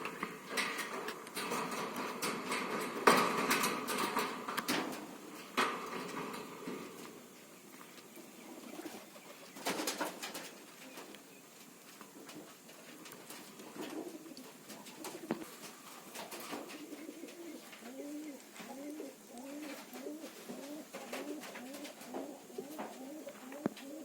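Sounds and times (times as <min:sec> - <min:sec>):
parrot cooing: 0:16.8 - 0:24.0.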